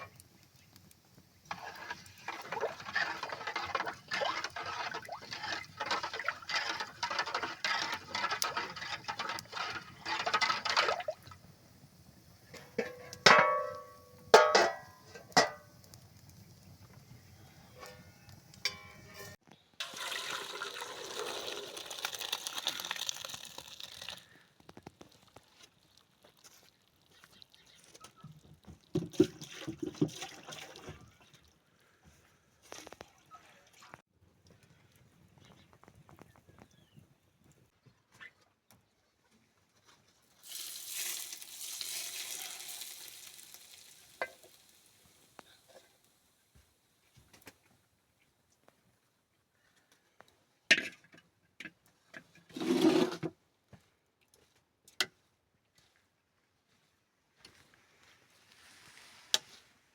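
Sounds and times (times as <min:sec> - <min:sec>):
liquid pouring: 0:01.5 - 0:11.4, 0:19.8 - 0:24.3, 0:40.4 - 0:44.8
liquid sloshing in a pot: 0:01.5 - 0:11.4, 0:28.6 - 0:31.4
ringing metal clanks: 0:18.6 - 0:19.4.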